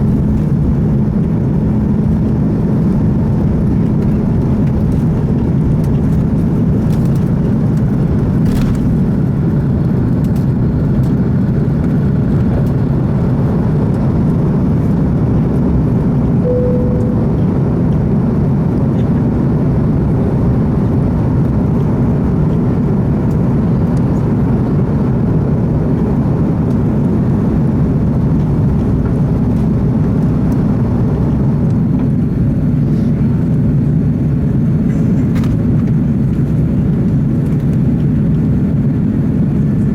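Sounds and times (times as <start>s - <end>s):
airplane engines roaring in cabin: 0.0s - 39.9s
brief tone: 16.4s - 18.1s.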